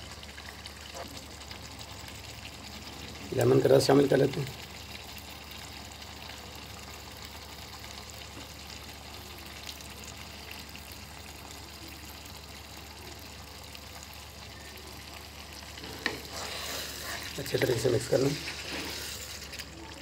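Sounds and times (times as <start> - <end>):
food sizzling in oil: 0.0 - 20.0.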